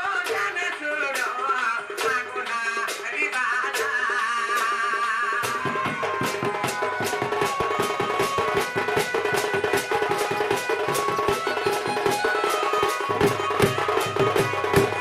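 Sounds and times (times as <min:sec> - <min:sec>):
fast drum beat: 0:00.0 - 0:15.0
folk melody of held notes: 0:05.9 - 0:15.0.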